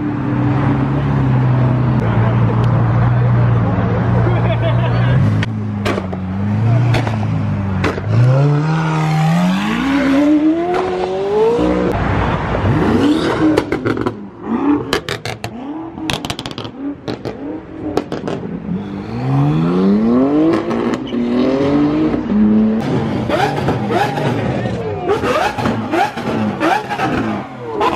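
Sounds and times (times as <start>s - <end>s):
sports car engine revving: 5.1s - 12.0s, 12.6s - 27.9s
exhaust pops and bangs: 5.8s - 6.2s, 7.8s - 8.2s, 16.1s - 18.5s.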